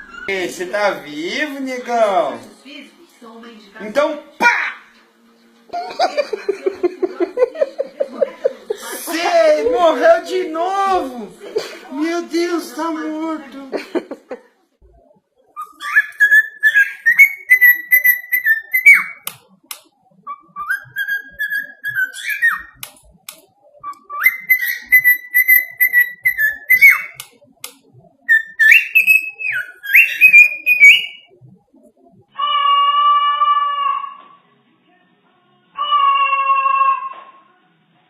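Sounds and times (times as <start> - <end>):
parrot whistling a tune: 0.0 - 0.3, 15.6 - 19.3, 20.2 - 22.8, 23.8 - 27.2, 28.2 - 31.3.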